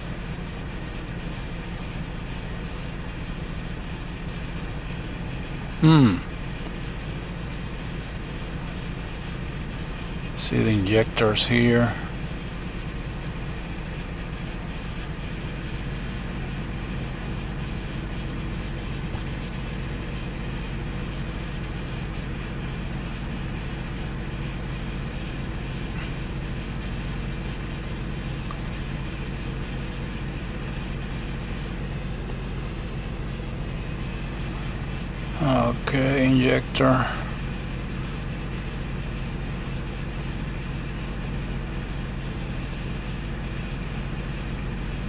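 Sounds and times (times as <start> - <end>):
engine idling rough with misfire: 0.0 - 45.0.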